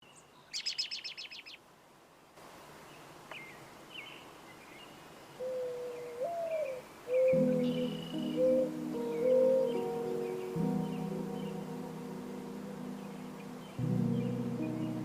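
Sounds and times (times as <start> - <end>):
bird chirps: 0.0 - 1.6, 3.3 - 15.0
wavering musical tone: 7.4 - 15.0.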